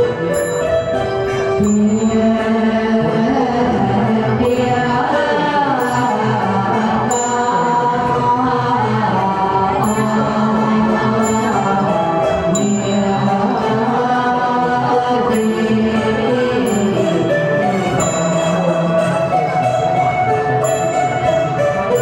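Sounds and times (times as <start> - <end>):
voices chanting a gliding melody: 0.0 - 22.0
small high-pitched bell struck: 0.3 - 2.5.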